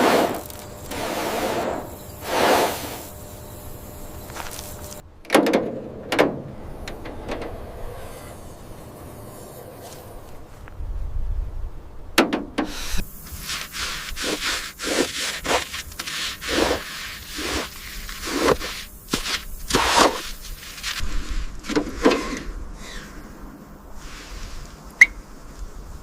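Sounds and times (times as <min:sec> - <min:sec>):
hand rubbing and scraping surface: 0:00.0 - 0:03.1, 0:12.6 - 0:23.2.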